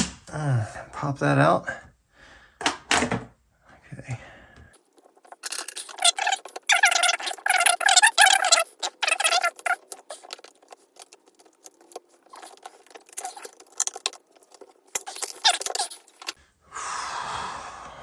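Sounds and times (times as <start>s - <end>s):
tools clicking and scraping parts: 5.0s - 16.4s.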